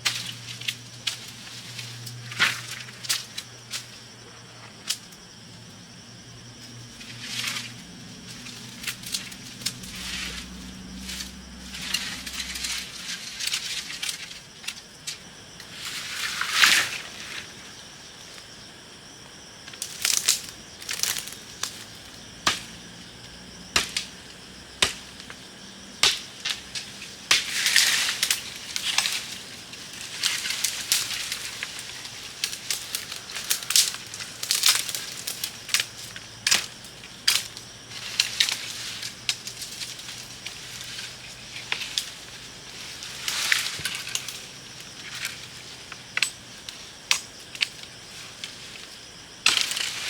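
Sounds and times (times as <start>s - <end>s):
knocks of bamboo and wood: 22.4s - 22.8s, 23.7s - 24.2s, 24.8s - 25.4s, 26.0s - 29.4s, 49.4s - 50.0s.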